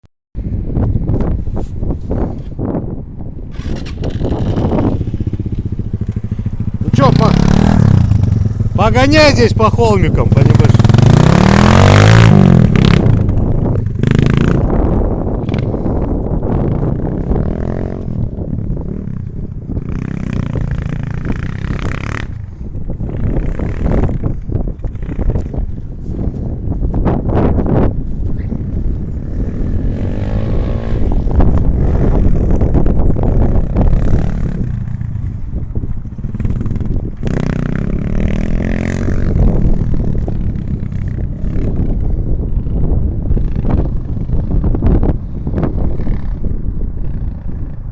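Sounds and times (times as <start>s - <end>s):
motorcycle engine revving: 3.5s - 26.2s, 27.1s - 47.9s.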